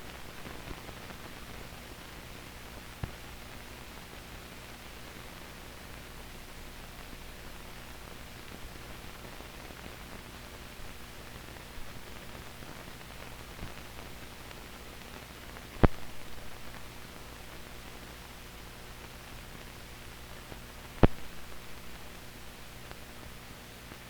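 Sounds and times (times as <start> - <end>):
faint hum: 0.0 - 24.0
film soundtrack hiss: 0.0 - 24.0
small ticks: 15.8 - 16.1, 21.0 - 21.3.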